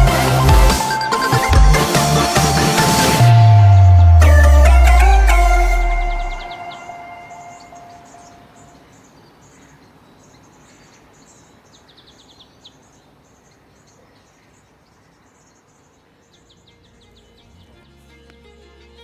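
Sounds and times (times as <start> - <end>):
held musical tone: 0.0 - 8.7
small birds chirping: 0.0 - 18.4.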